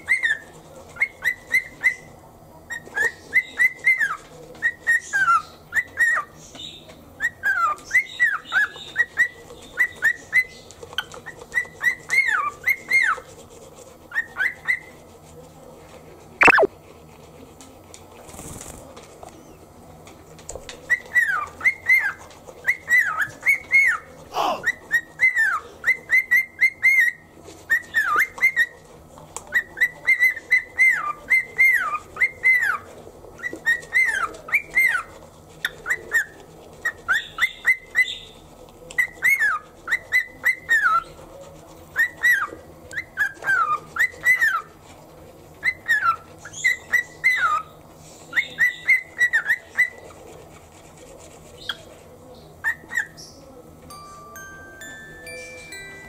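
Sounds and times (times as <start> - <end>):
cockatiel whistling: 16.4 - 16.7.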